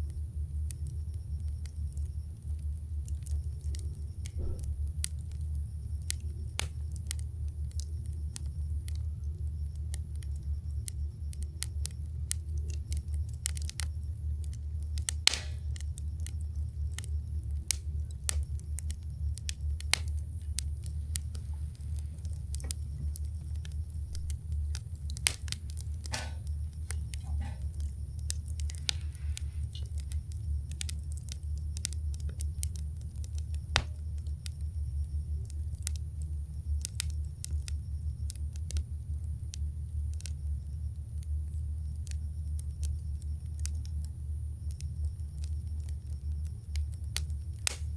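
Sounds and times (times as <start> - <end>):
low rumble: 0.0 - 42.9
campfire crackling and popping: 0.0 - 47.9.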